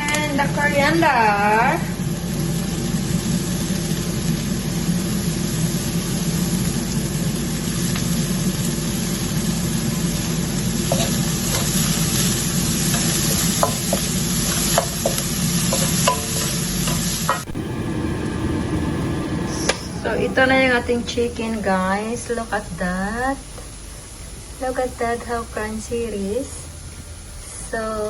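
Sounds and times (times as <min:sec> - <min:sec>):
food sizzling in hot oil: 0:00.0 - 0:28.0.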